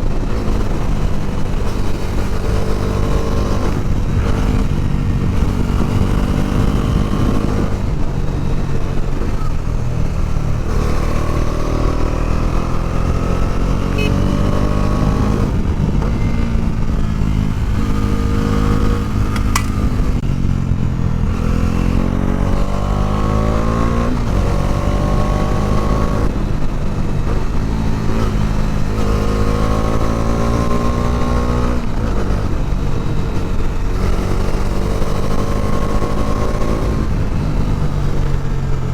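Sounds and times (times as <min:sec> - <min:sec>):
motorcycle engine revving: 0:00.0 - 0:38.9
sharp click: 0:19.3 - 0:20.0.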